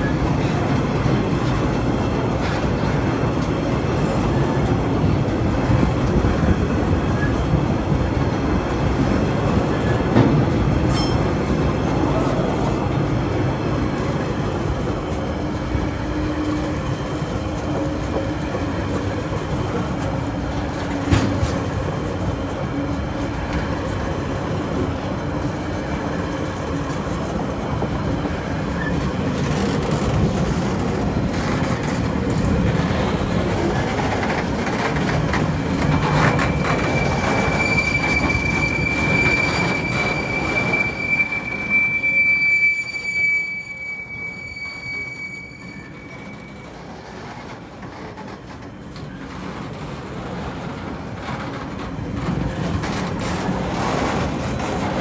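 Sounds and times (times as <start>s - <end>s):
train wheels clattering on rails: 0.0s - 15.8s, 16.4s - 43.0s, 46.1s - 55.0s
high-pitched wheel squeal: 35.9s - 46.9s.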